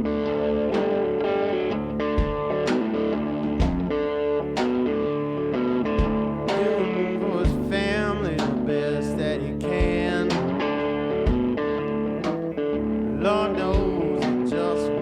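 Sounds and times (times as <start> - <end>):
blues-rock song with guitar: 0.0 - 15.0
drum hits: 2.1 - 4.9, 5.9 - 6.8, 7.4 - 8.8, 9.8 - 10.6, 11.3 - 12.6, 13.6 - 14.6.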